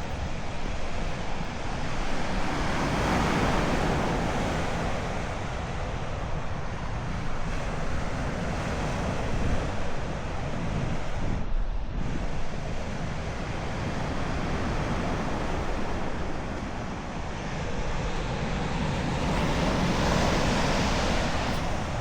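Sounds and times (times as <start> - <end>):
wind buffeting microphone: 0.0 - 22.0
ocean surf washing on shore: 6.9 - 22.0.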